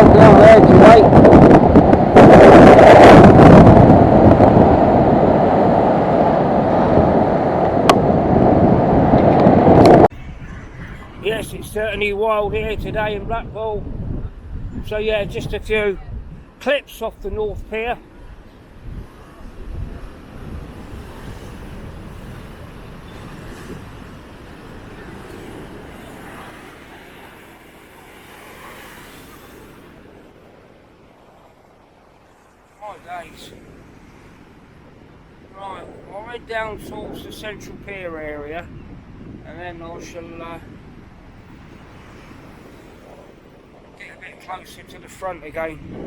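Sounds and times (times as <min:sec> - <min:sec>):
rough sea surging: 0:00.0 - 0:46.0
strong wind buffeting microphone: 0:00.0 - 0:46.0.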